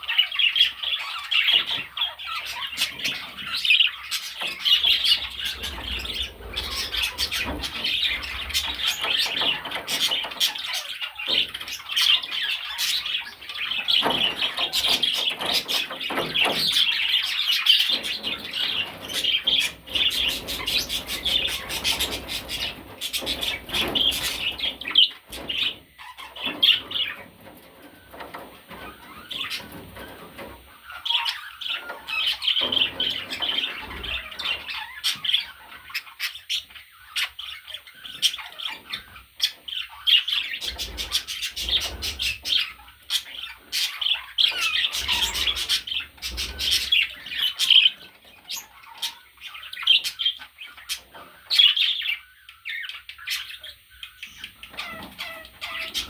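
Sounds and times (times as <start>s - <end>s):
budgerigar chattering and warbling: 30.8s - 56.0s.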